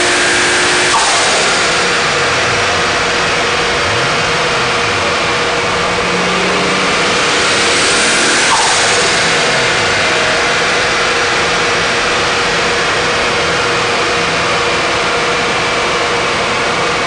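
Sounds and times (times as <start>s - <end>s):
car engine running loud: 0.0s - 17.0s
short falling tone: 0.9s - 11.8s.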